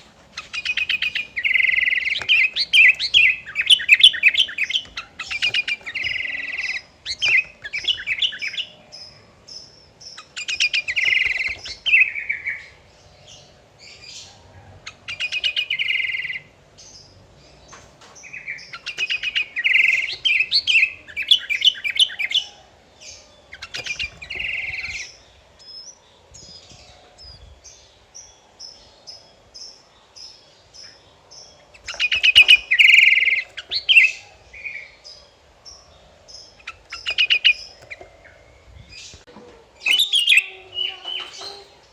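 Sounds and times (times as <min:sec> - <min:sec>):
bulbul singing chattering phrases: 0:00.4 - 0:12.9, 0:18.4 - 0:22.5, 0:39.2 - 0:41.9.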